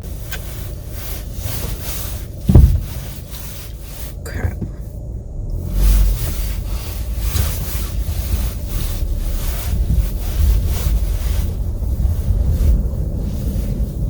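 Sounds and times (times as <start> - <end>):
car driving on snow: 0.0 - 14.0.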